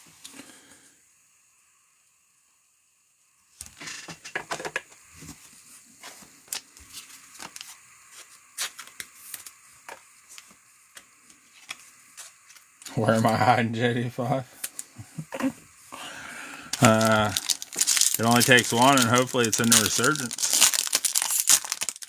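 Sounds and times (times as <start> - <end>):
cards clicking and sliding: 6.5 - 12.9.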